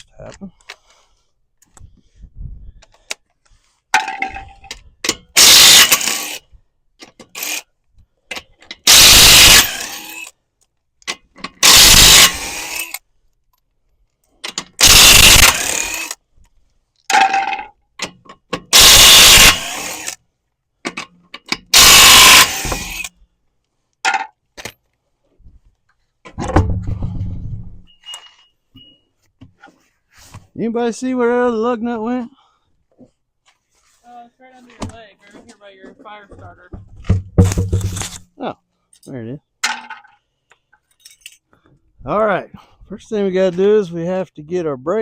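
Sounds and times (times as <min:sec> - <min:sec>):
impact wrench bursts: 0:05.1 - 0:06.4, 0:07.2 - 0:07.6, 0:08.8 - 0:10.3, 0:11.5 - 0:13.0, 0:14.5 - 0:16.2, 0:18.6 - 0:20.2, 0:21.4 - 0:23.1.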